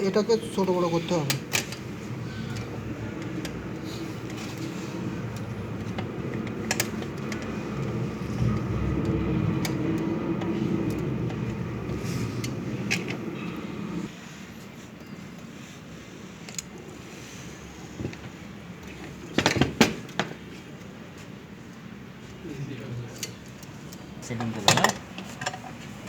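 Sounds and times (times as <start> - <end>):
low engine-like rumble: 0.0 - 14.2.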